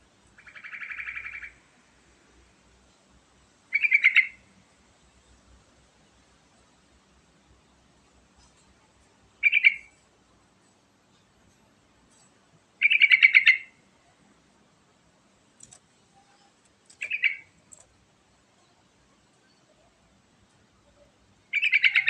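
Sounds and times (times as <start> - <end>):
bird singing rapid notes: 0.4 - 1.6, 3.7 - 4.5, 9.4 - 9.9, 12.8 - 13.8, 16.9 - 17.6, 21.5 - 22.0.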